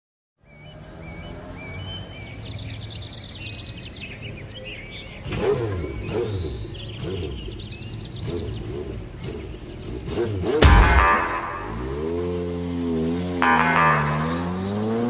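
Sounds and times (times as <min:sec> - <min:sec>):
birds chirping: 0:00.4 - 0:12.6, 0:13.4 - 0:15.0
car engine revving: 0:04.6 - 0:15.0.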